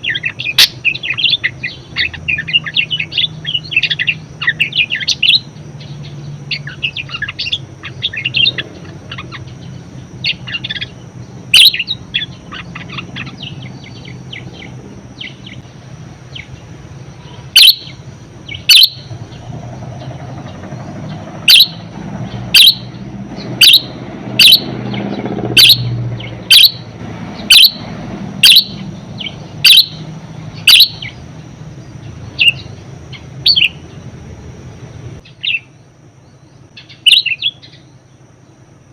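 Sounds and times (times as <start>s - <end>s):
budgerigar chattering and chirping: 0.0s - 5.5s, 6.5s - 15.7s, 17.3s - 19.4s, 20.0s - 21.8s, 22.5s - 27.8s, 28.4s - 31.2s, 32.4s - 33.8s, 36.8s - 37.8s.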